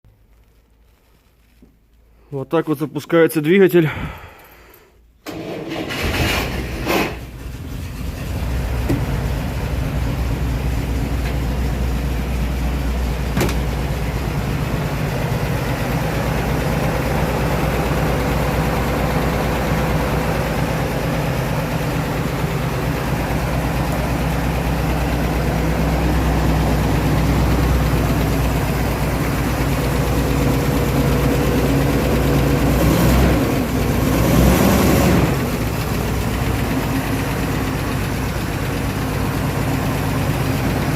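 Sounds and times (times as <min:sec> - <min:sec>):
car engine idling and revving: 0:05.3 - 0:40.9.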